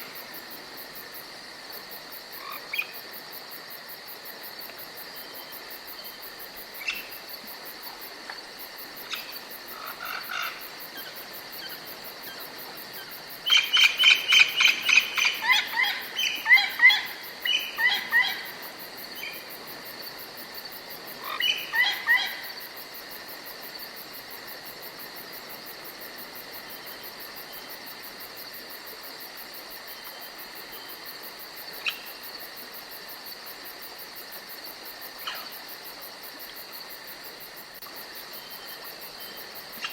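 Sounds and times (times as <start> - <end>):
insects chirring: 0.0 - 39.9
songbird singing: 9.0 - 19.5, 21.2 - 22.5.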